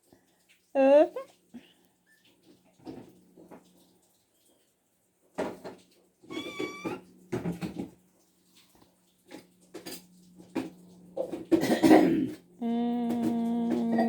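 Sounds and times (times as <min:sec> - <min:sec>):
cat meowing: 0:06.3 - 0:07.0.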